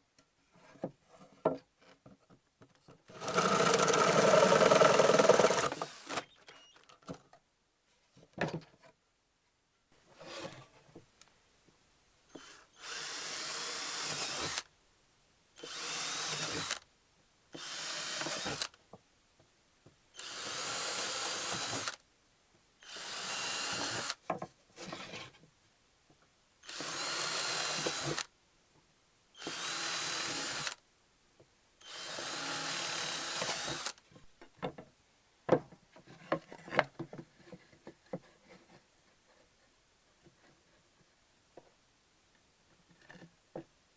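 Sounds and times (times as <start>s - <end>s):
power drill whining: 3.2s - 6.8s, 12.4s - 14.7s, 15.6s - 16.8s, 17.6s - 18.7s, 20.2s - 22.0s, 22.8s - 24.2s, 26.7s - 28.2s, 29.4s - 30.8s, 31.8s - 34.0s.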